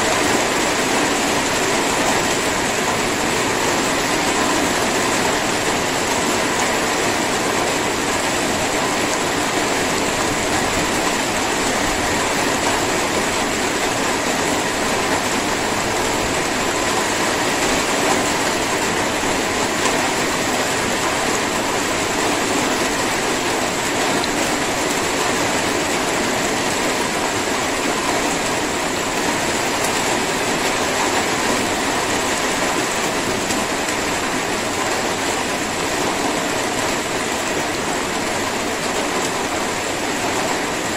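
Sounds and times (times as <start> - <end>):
light rain falling: 0.0 - 40.9.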